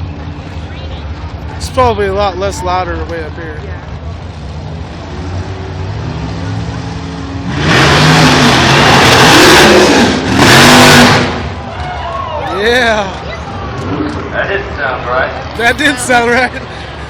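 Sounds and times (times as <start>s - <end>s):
race truck engine revving: 4.2s - 11.9s.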